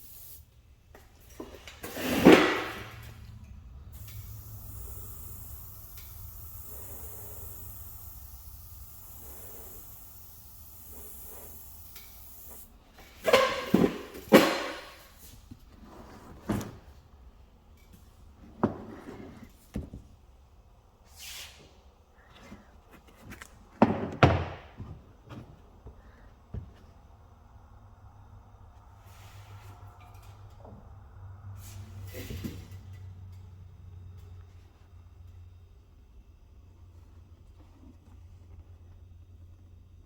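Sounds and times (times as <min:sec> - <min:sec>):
high hiss: 0:00.0 - 0:00.6, 0:03.9 - 0:15.3.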